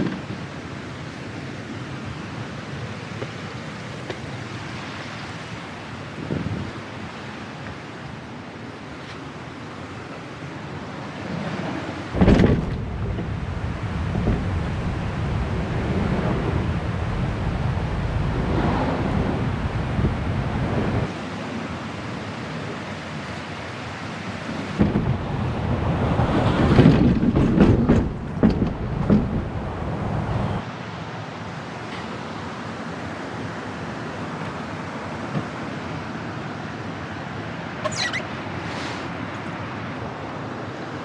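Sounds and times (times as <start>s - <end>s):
wind buffeting microphone: 6.0s - 6.9s, 11.3s - 21.2s, 24.4s - 30.6s.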